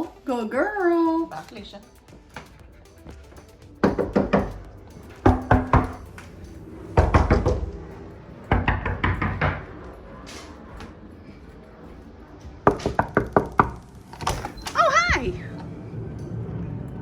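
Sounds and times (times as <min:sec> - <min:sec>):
sharp knocking: 0:03.8 - 0:04.6.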